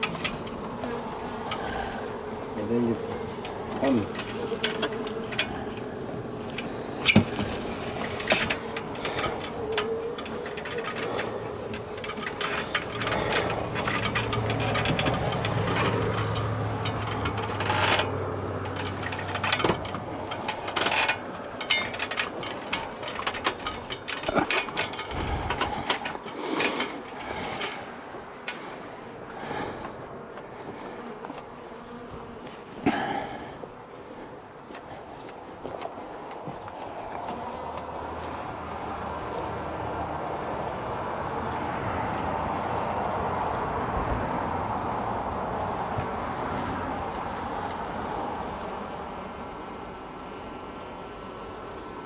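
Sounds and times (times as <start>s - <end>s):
bees buzzing: 0.0s - 52.0s
knocks and scrapes: 6.4s - 28.8s.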